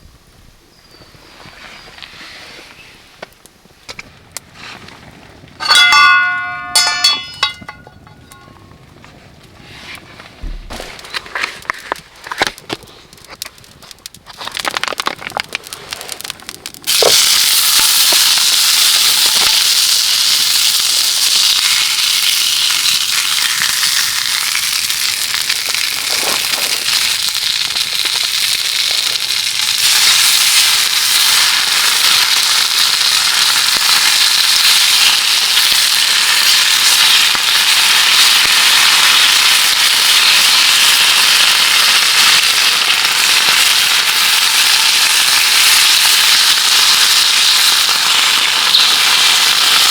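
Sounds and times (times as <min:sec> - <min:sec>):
sharp crackles: 0:06.4 - 0:49.9
heavy rain drumming on tarp: 0:24.9 - 0:49.9.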